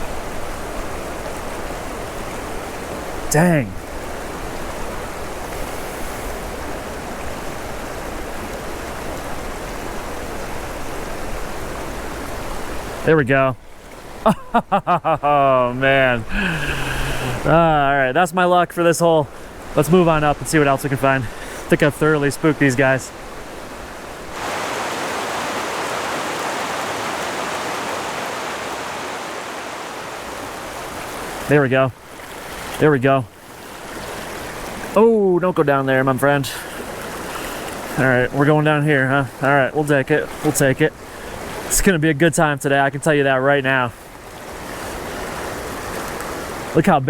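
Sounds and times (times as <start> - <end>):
river rushing over rapids: 19.4 - 32.8.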